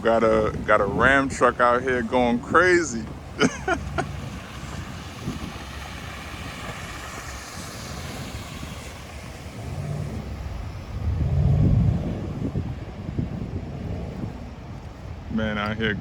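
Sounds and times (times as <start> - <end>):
rushing hiss: 3.4 - 11.6.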